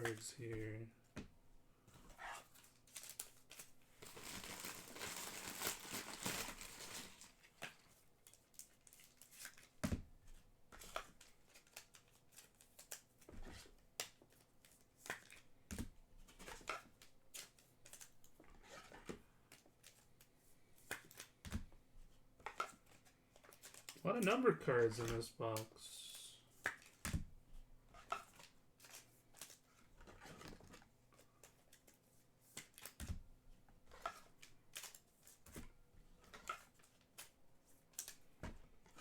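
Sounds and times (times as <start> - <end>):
plastic sleeve crinkling: 2.8 - 7.9.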